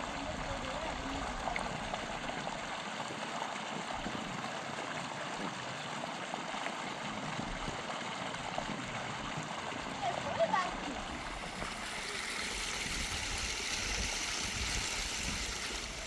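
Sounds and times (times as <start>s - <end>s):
water running: 10.5s - 16.0s.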